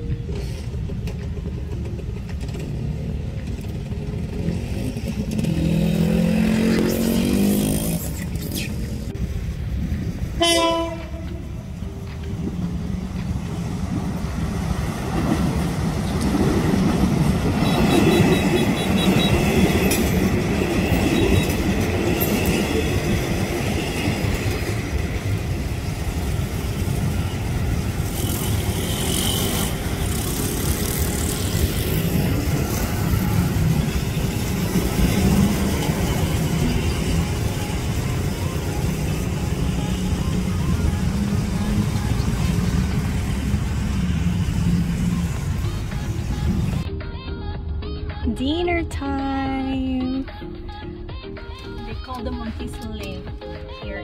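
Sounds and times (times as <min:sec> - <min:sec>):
train rumbling over crossing: 0:00.0 - 0:46.9
train horn: 0:10.4 - 0:11.5, 0:17.6 - 0:20.1, 0:28.0 - 0:30.4.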